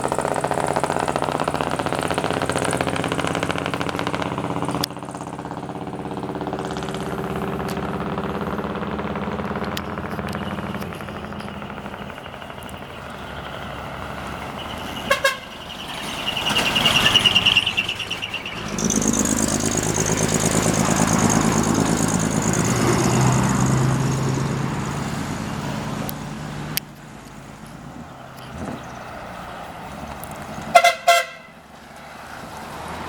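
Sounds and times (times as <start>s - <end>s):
truck diesel engine passing: 0.0s - 33.0s
warbling horn call: 14.5s - 22.9s, 30.7s - 31.6s
short horn toot: 15.0s - 15.6s, 30.7s - 31.6s.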